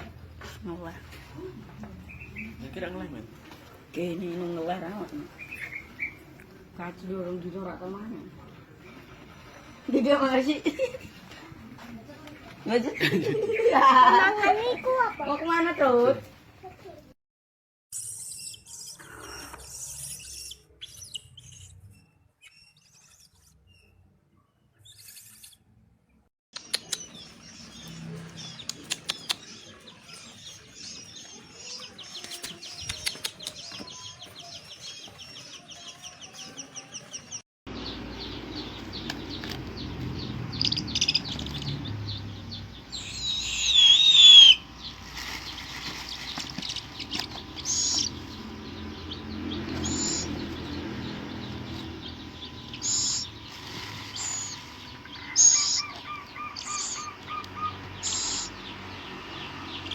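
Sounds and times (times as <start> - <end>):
baby bird of prey calling: 42.9 - 44.7, 46.4 - 48.3, 49.8 - 50.4, 52.6 - 58.6.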